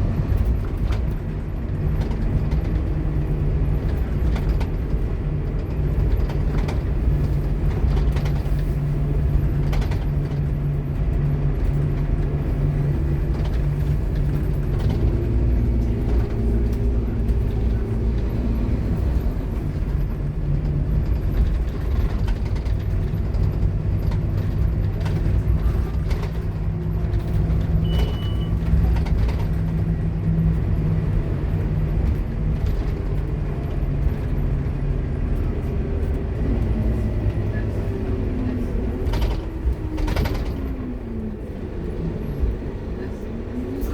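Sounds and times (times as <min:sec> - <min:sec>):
bus engine running: 0:00.0 - 0:43.9
short high beep: 0:27.8 - 0:28.6.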